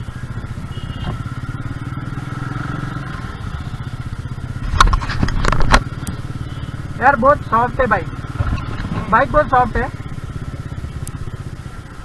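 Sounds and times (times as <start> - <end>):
motorcycle engine running: 0.0 - 12.0
knocks and clatter: 4.6 - 6.1, 8.3 - 9.2.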